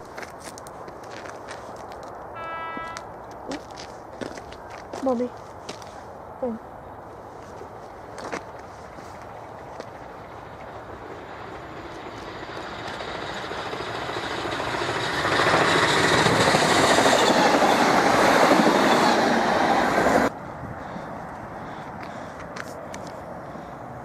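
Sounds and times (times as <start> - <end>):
train wheels on rails: 7.4 - 20.4.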